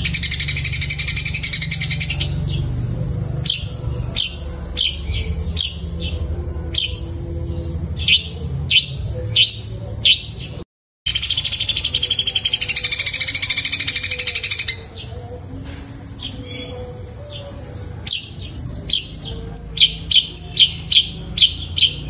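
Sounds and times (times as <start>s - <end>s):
bird chattering trill: 0.0s - 2.7s, 11.1s - 15.0s, 18.1s - 22.0s
harsh bird chirps: 0.0s - 15.3s, 16.1s - 22.0s.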